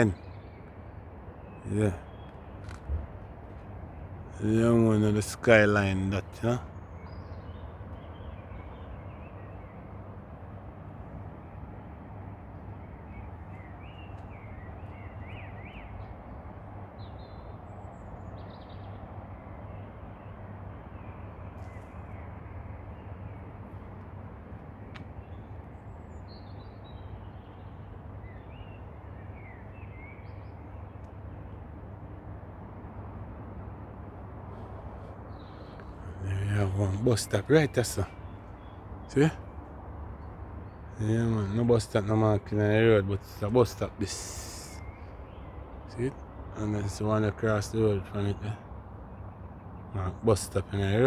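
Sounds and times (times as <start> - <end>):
birds chirping and calling: 0.0 - 0.8, 1.4 - 9.7, 34.9 - 39.6, 40.7 - 48.7.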